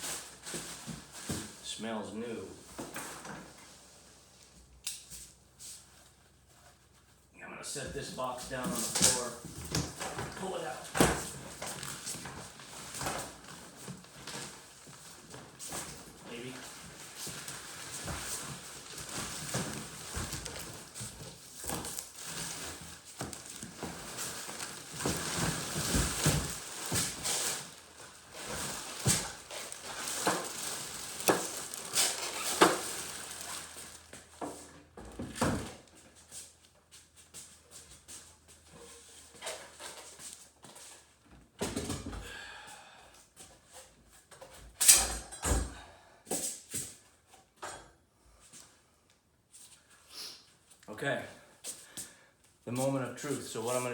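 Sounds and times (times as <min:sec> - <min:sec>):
plastic packaging rustling: 0:08.2 - 0:34.7.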